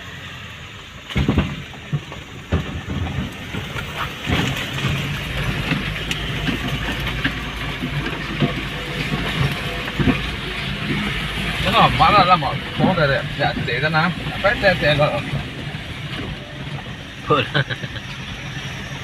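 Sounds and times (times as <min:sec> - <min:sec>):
heavy machinery engine rumble: 0:00.0 - 0:19.0.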